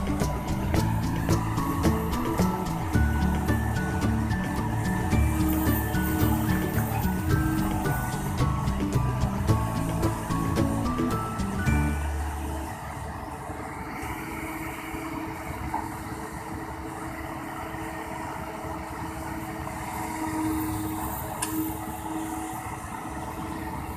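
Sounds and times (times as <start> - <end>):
heavy diesel engine running: 0.0 - 23.9.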